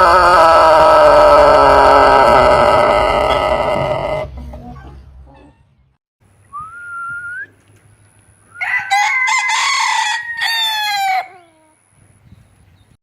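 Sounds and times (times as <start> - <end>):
rooster crowing: 0.0 - 4.3, 8.5 - 11.8.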